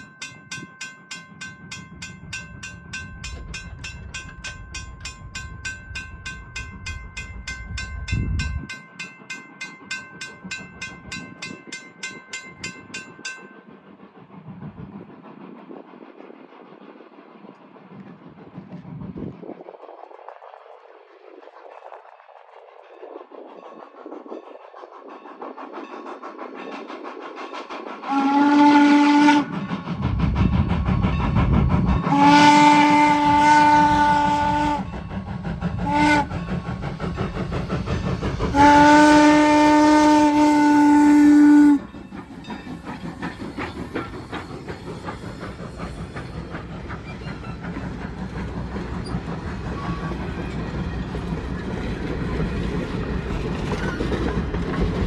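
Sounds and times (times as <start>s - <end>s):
train running and rail clatter: 0.0s - 55.0s
steam whistle blasts: 28.1s - 29.6s, 32.0s - 35.0s, 35.8s - 36.4s, 38.5s - 41.9s.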